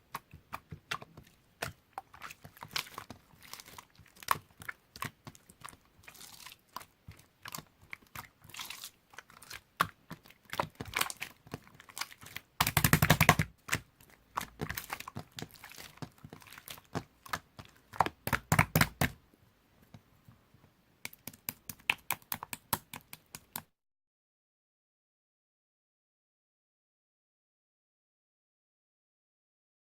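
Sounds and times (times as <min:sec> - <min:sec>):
slime squished by hand: 0:00.5 - 0:19.2.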